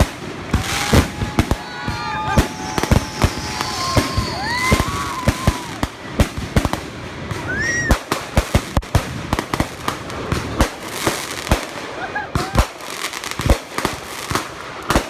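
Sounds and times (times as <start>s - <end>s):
firework whistles: 0.0s - 5.9s, 7.4s - 8.1s
firework bangs: 0.0s - 15.0s.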